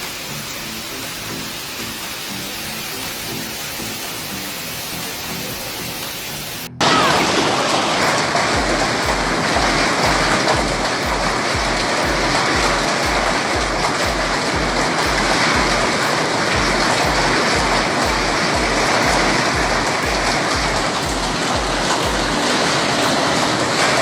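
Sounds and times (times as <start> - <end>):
heavy rain downpour: 0.0 - 24.0
music with thumping bass beat: 8.0 - 23.4.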